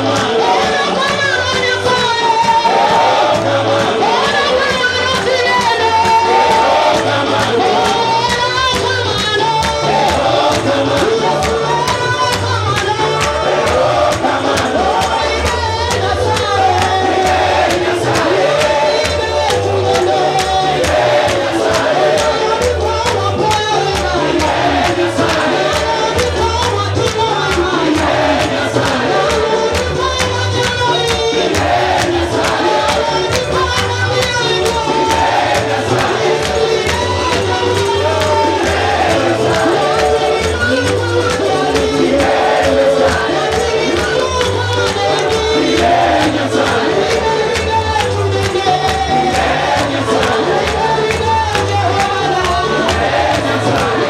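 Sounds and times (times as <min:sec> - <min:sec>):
gospel choir singing with band: 0:00.0 - 0:54.0.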